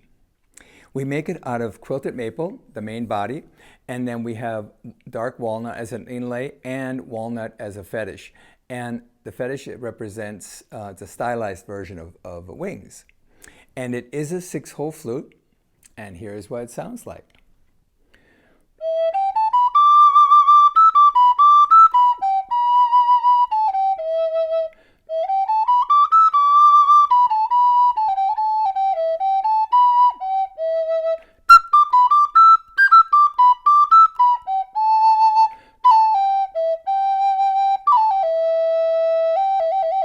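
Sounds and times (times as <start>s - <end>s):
flute playing slow melody: 18.8s - 40.0s.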